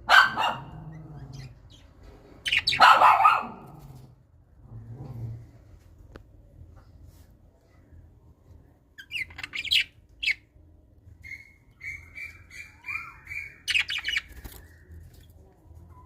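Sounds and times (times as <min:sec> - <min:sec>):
birds squawking: 0:02.4 - 0:03.2, 0:09.0 - 0:10.4, 0:11.3 - 0:14.7.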